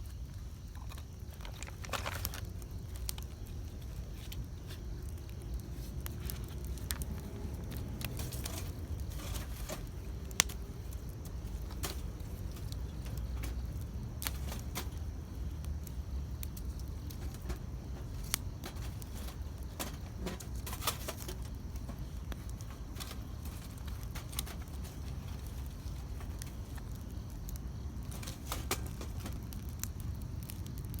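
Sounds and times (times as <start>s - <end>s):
burning wood snapping and popping: 0.0s - 31.0s
campfire crackling: 0.0s - 31.0s.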